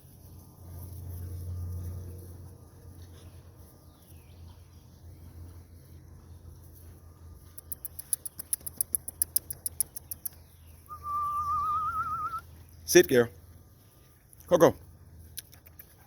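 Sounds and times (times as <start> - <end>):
low steady hum: 0.0 - 16.0
rapid light sharp clicks: 7.6 - 10.4.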